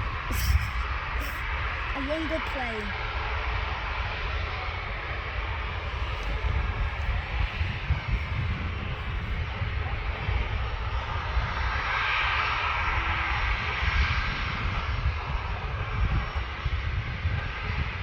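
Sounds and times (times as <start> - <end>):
jet airliner passing: 0.0 - 18.0.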